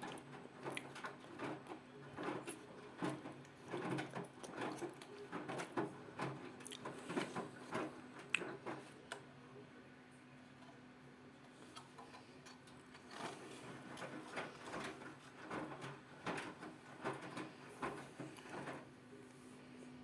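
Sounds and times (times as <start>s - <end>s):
wet laundry tumbling in drum: 0.0s - 9.0s, 12.8s - 19.0s
washing machine humming: 0.0s - 9.6s, 10.8s - 20.0s.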